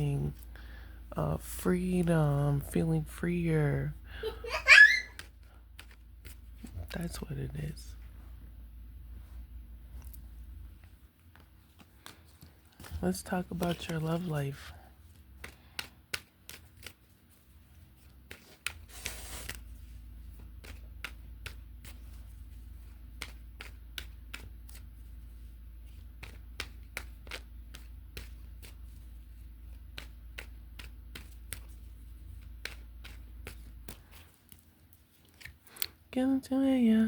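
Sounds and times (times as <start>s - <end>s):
cards being shuffled: 5.1s - 7.4s, 9.9s - 36.0s.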